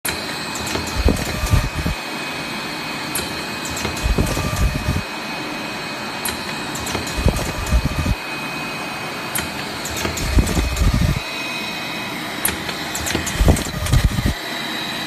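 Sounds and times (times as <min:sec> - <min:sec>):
packaging machine humming: 0:00.1 - 0:02.2, 0:03.1 - 0:05.2, 0:06.2 - 0:14.6
sharp machine clicks: 0:00.6 - 0:02.0, 0:03.2 - 0:05.1, 0:06.3 - 0:08.2, 0:09.4 - 0:11.3, 0:12.5 - 0:14.4
machine knocks and clunks: 0:03.7 - 0:05.0.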